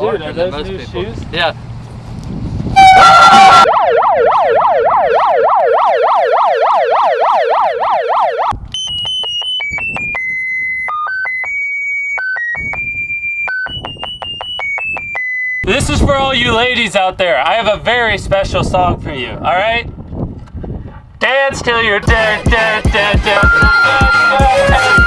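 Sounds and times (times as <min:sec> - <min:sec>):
megaphone siren yelping: 0:02.8 - 0:15.7, 0:23.3 - 0:25.0
beeping electronic tune: 0:02.8 - 0:15.8, 0:23.2 - 0:25.0.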